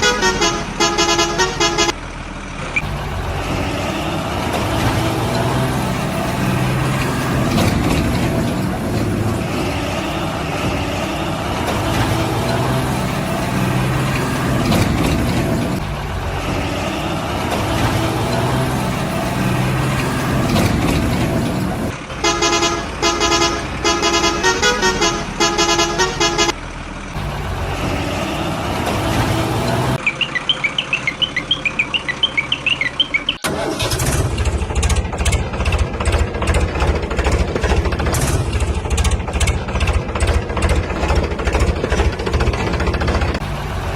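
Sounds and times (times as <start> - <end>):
pulsing multi-tone horn: 0.0 - 2.0, 22.2 - 26.6
truck engine running: 0.0 - 43.9
high chirping beeps: 30.0 - 33.4
fast rattle: 34.0 - 43.4.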